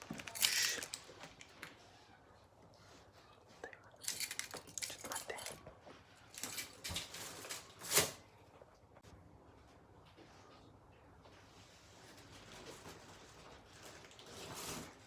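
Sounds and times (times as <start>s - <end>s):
clicks clinks and rustles: 0.0s - 1.6s, 4.0s - 5.7s, 6.3s - 8.2s.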